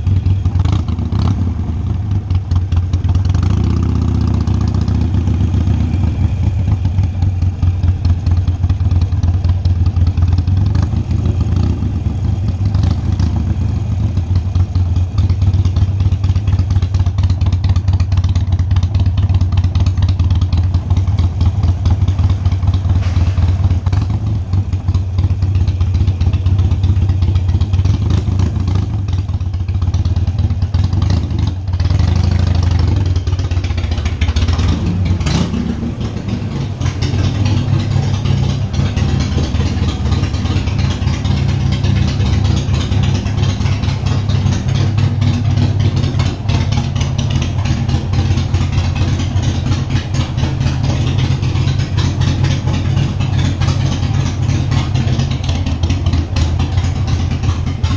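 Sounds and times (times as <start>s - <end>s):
motorcycle engine idling: 0.0s - 57.9s.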